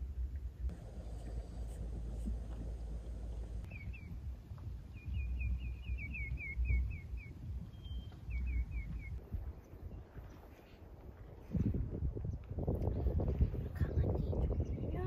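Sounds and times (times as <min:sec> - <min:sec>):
low rumbling noise: 0:00.0 - 0:09.9
bird chirping: 0:03.3 - 0:04.3, 0:04.9 - 0:10.0.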